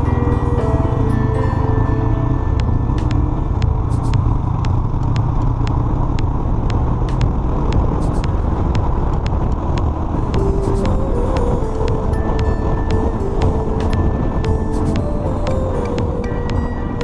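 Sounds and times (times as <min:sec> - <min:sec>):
background music beat: 0:00.0 - 0:17.0
motorcycle engine and wind rumble: 0:00.0 - 0:17.0.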